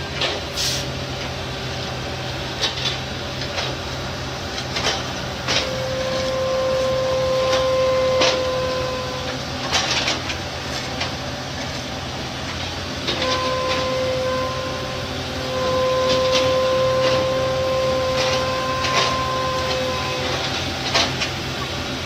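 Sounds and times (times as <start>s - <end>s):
low engine drone: 0.0s - 22.0s
mechanical whine: 4.6s - 11.3s, 12.6s - 22.0s
metallic clanks and knocks: 7.5s - 11.8s, 18.0s - 21.4s.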